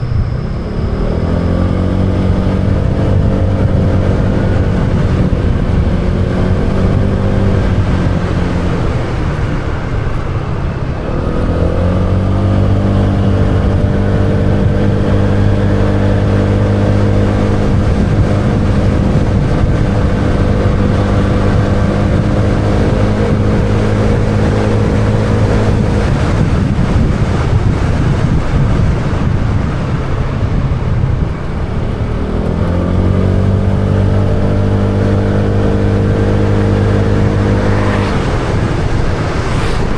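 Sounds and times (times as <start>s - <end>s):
motorbike engine running: 0.0s - 39.9s.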